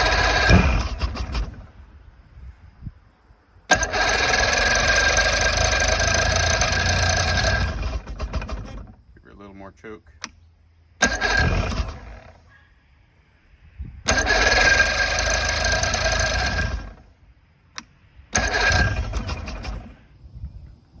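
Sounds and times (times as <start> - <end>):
outboard motor starter cranking: 0.0 - 1.9, 3.7 - 9.5, 10.1 - 12.5, 14.0 - 20.2.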